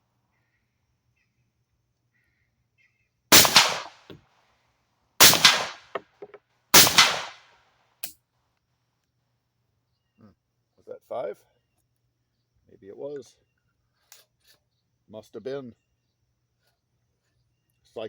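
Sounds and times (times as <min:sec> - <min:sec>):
pistol gunshots: 0:03.3 - 0:04.2, 0:05.2 - 0:06.0, 0:06.8 - 0:07.4
weaker echo report: 0:05.2 - 0:06.0.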